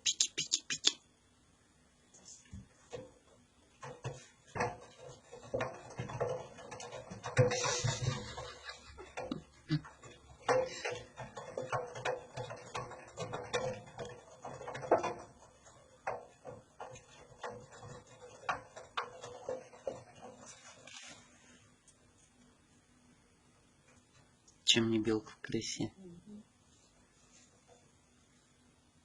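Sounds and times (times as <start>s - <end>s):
cat knocking inside metal drum: 3.8s - 20.6s.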